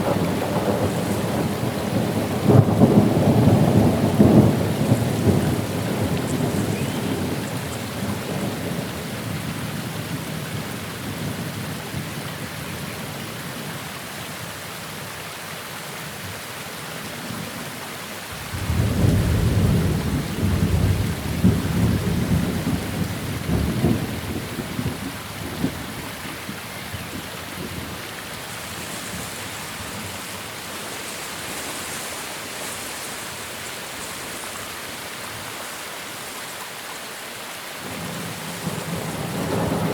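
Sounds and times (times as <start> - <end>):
thunder rumbling: 0.0 - 8.9, 18.4 - 26.2, 37.8 - 39.9
steady rain: 0.0 - 39.9.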